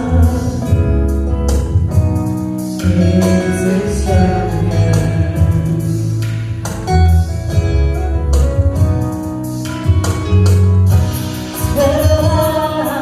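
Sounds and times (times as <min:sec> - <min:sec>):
person singing: 0:00.0 - 0:01.2, 0:02.8 - 0:06.5, 0:11.4 - 0:13.0
bass: 0:00.0 - 0:13.0.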